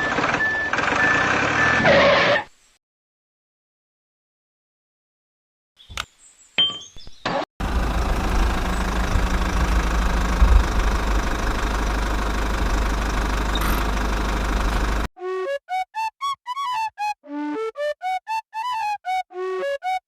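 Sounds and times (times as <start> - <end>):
small engine running: 7.6 - 15.1.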